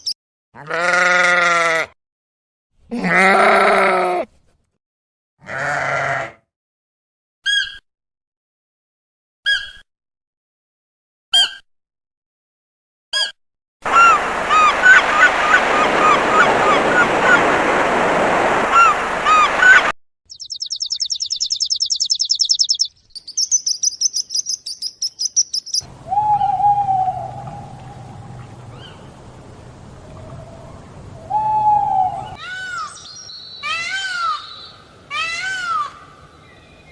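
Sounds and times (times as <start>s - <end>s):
rapid high bird trills: 20.3s - 25.9s
faint hum: 25.8s - 36.9s
low drawn-out animal calls: 25.9s - 29.2s, 29.9s - 32.9s.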